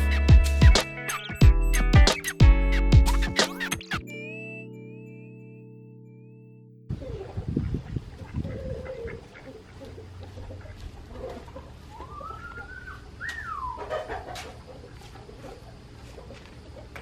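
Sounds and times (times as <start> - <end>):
chickens clucking: 7.0 - 17.0.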